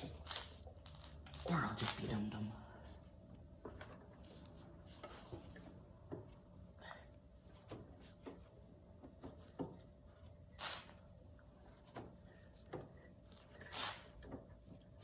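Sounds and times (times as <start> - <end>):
short rubbing swishes: 10.5 - 11.1, 13.3 - 14.3.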